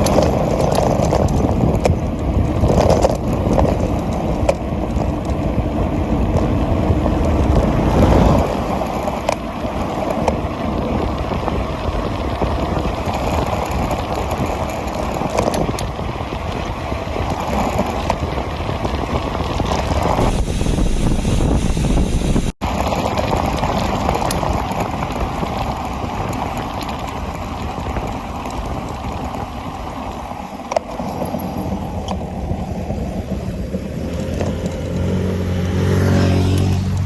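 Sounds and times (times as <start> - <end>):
small clicks and rattles: 0.0 - 6.6, 11.9 - 20.2, 33.1 - 35.2
bicycle rolling fast downhill: 0.0 - 37.0
wind buffeting microphone: 0.0 - 37.0.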